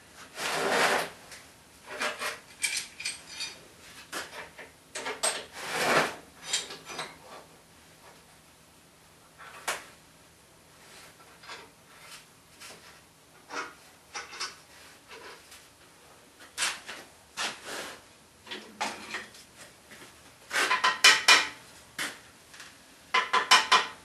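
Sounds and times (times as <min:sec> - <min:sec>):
metal clamp scraping and clinking: 0:01.9 - 0:03.6.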